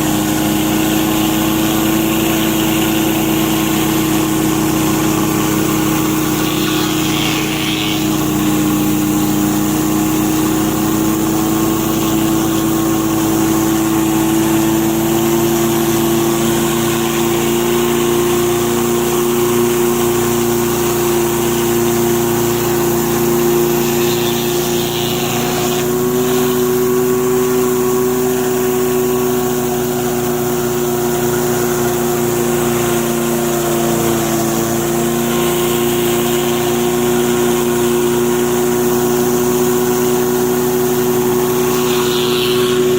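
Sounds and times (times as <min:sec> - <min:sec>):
water spray hissing: 0:00.0 - 0:30.4, 0:38.9 - 0:42.9
pressure washer engine drone: 0:00.0 - 0:42.9.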